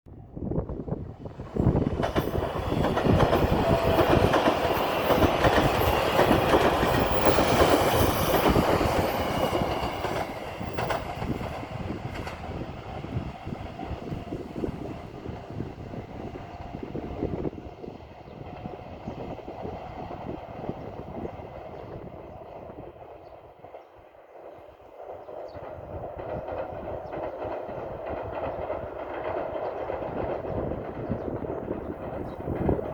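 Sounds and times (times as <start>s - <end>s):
train wheels clattering over rail joints: 1.6s - 13.4s, 25.0s - 32.9s.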